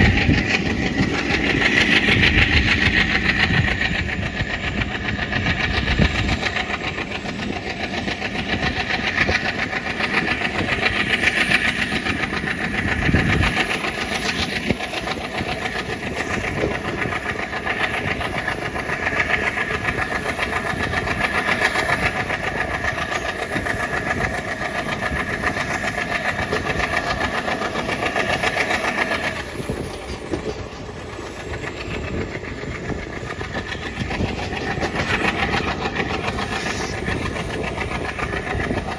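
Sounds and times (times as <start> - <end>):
diesel locomotive engine chugging: 0.0 - 38.9.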